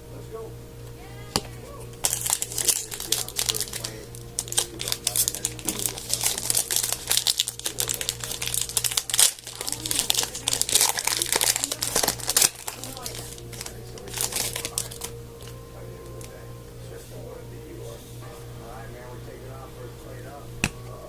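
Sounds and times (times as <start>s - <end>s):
card pack wrappers crinkling: 1.4s - 16.5s.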